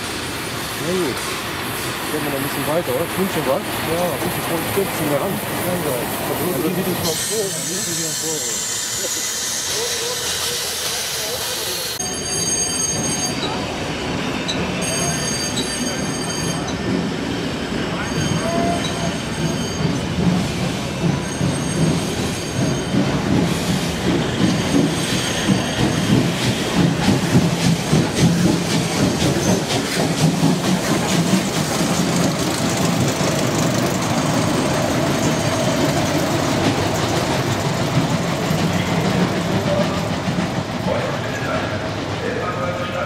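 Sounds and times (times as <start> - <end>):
high wheel squeal: 2.2 - 16.9, 17.9 - 40.1
wheels clacking over rail joints: 18.1 - 41.7.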